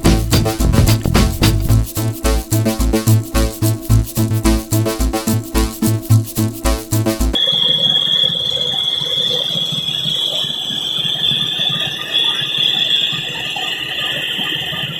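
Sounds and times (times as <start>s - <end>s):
rough low rumble: 0.0s - 2.0s
high-pitched whistle: 7.4s - 14.9s.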